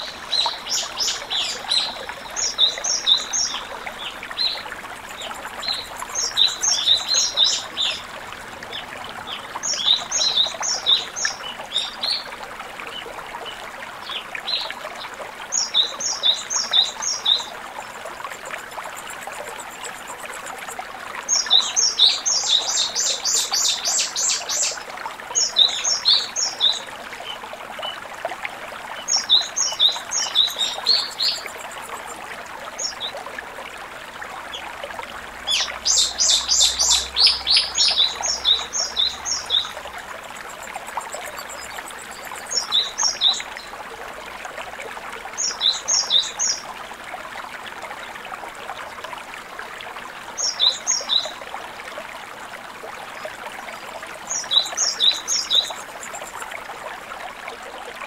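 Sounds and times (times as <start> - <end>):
songbird singing: 0.0 - 8.1, 29.0 - 32.2, 35.4 - 43.7.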